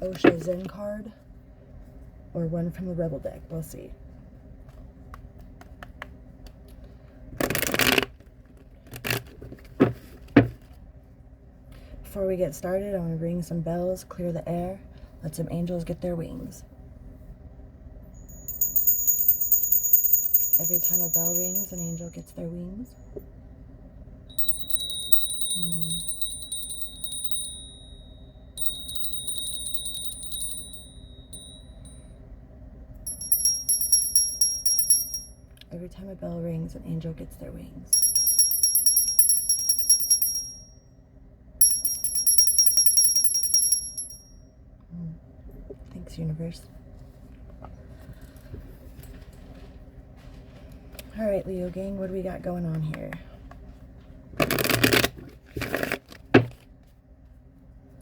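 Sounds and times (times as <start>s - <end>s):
small hand bells ringing: 18.2s - 22.2s, 24.3s - 32.1s, 33.1s - 35.5s, 37.9s - 40.9s, 41.6s - 44.4s.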